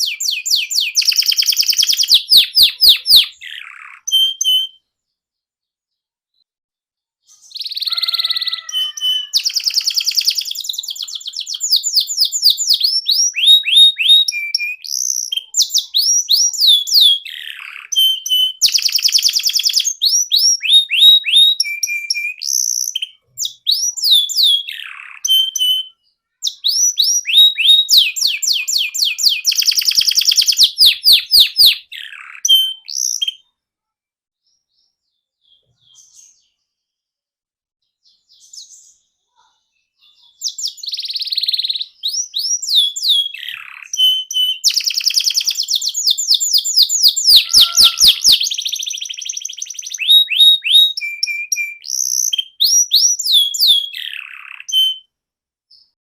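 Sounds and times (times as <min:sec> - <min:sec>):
canary trills: 0:00.0 - 0:05.1, 0:07.2 - 0:33.6, 0:38.0 - 0:55.1
downward-sweeping whistles: 0:47.1 - 0:51.8.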